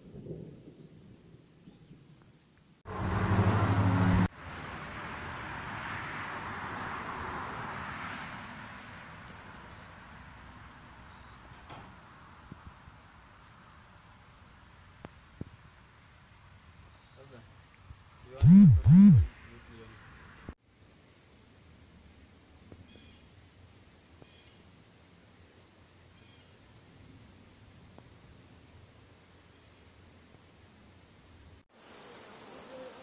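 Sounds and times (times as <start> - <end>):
insect chorus chirring: 4.3 - 20.6, 26.0 - 28.0, 31.7 - 33.0
loud low-pitched hum: 18.4 - 19.3.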